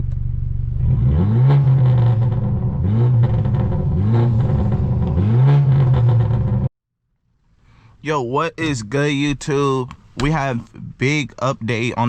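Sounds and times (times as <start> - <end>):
car exhaust accelerating hard: 0.0 - 6.7.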